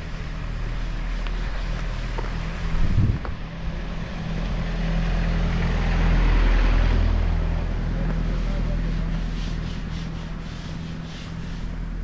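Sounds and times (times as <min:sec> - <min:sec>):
wind buffeting microphone: 0:02.1 - 0:04.0.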